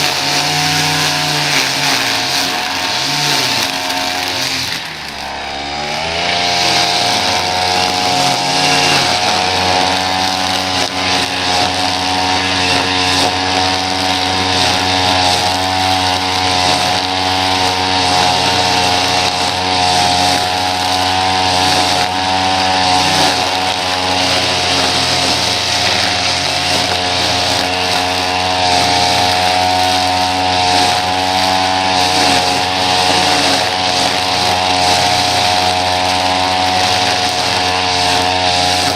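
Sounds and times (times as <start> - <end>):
small petrol engine revving: 0.0 - 38.9.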